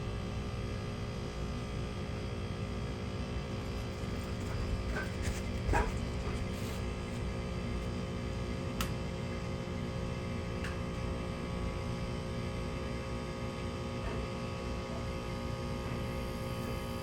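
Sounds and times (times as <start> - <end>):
air conditioner unit humming: 0.0 - 17.0
rushing fan noise: 0.0 - 17.0.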